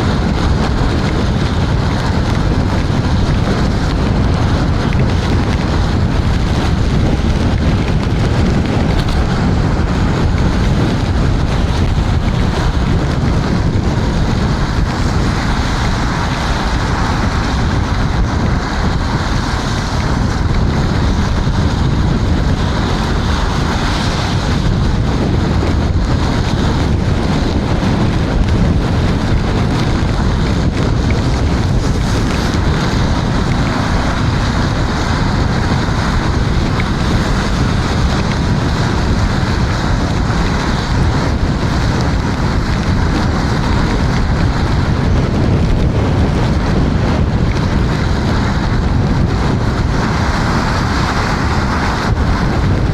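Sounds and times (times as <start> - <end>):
tyres hissing on wet road: 0.0 - 52.9
wind buffeting microphone: 0.0 - 52.9.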